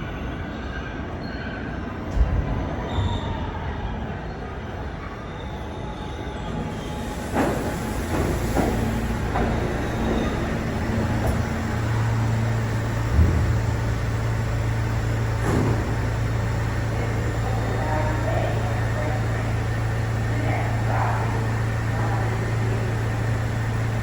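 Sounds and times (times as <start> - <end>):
low motor hum: 6.9 - 24.0
train wheels clicking over rail joints: 7.0 - 24.0.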